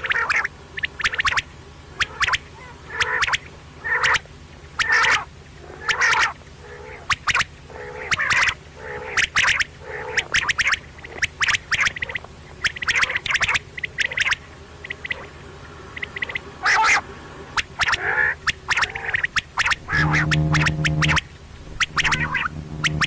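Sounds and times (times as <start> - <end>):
quail calling: 0.0 - 23.0.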